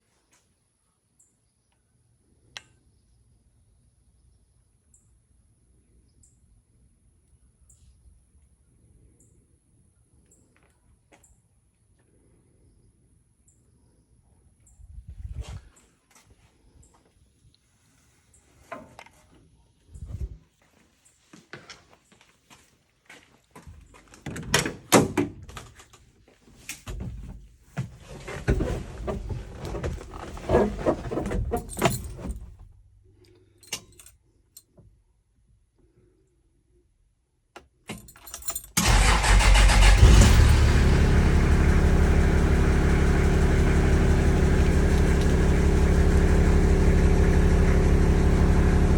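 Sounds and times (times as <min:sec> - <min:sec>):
handling clicks and knocks: 0:24.0 - 0:32.6
keys jangling: 0:31.1 - 0:32.5, 0:33.6 - 0:34.2, 0:37.9 - 0:38.8
car engine starting and idling: 0:38.8 - 0:48.9.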